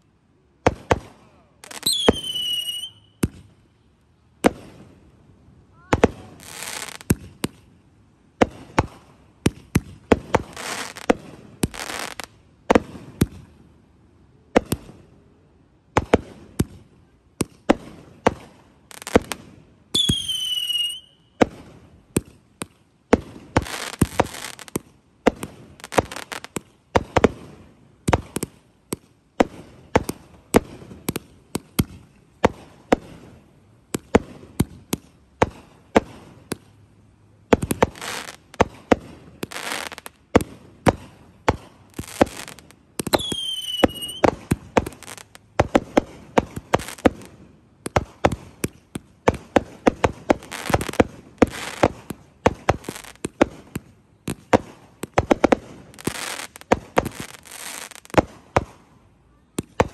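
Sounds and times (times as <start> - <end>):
firework bangs: 0.6 - 3.5, 17.4 - 36.8, 37.5 - 58.9
whistling firework: 0.8 - 3.5, 18.9 - 21.7, 40.9 - 45.3.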